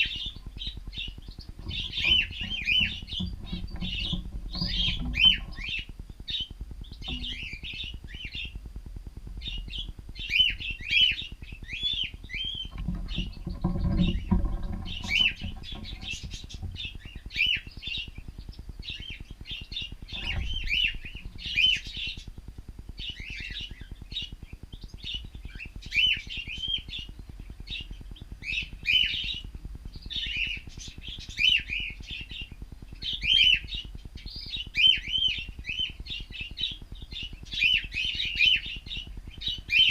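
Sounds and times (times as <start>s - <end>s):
cockatiels chirping: 0.0s - 8.6s, 30.0s - 39.9s.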